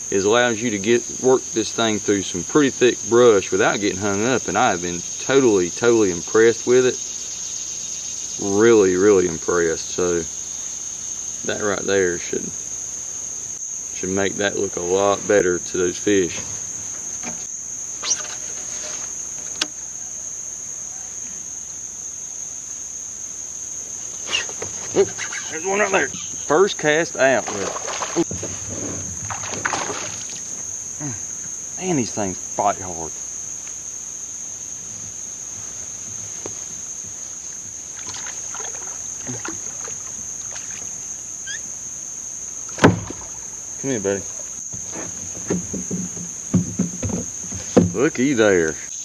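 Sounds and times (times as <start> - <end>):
insect chorus drone: 0.0 - 49.0
faint water splashes: 27.2 - 30.6, 37.9 - 41.0, 42.7 - 44.6
knocks on kayak: 27.5 - 30.3, 42.8 - 43.4, 44.7 - 48.2.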